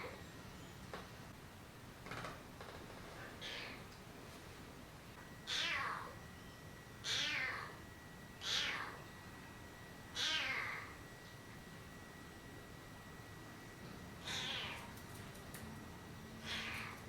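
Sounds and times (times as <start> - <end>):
kitten meowing: 5.5 - 6.1, 7.0 - 7.8, 8.4 - 9.0, 10.2 - 10.9, 14.2 - 14.9, 16.4 - 17.0.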